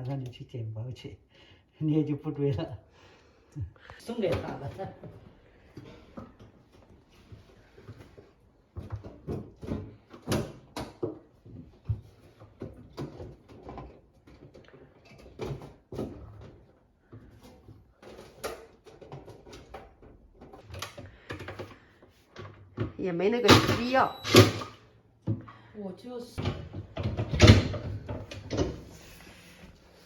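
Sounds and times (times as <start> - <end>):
dishwasher rack knocks and clatters: 23.5 - 24.8, 26.4 - 28.8.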